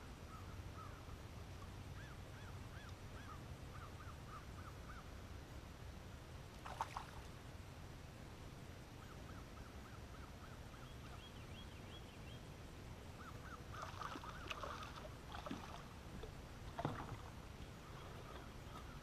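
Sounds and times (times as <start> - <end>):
birds calling: 13.1 - 15.8, 16.7 - 19.0.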